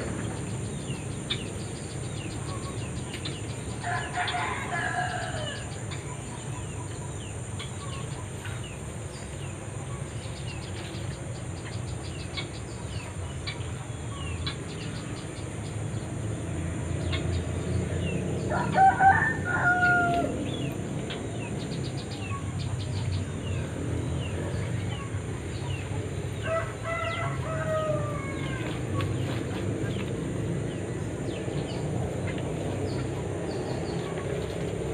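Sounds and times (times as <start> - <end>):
small birds chirping: 0.0 - 34.9
rooster crowing: 3.8 - 5.8, 18.4 - 20.6, 26.4 - 28.8.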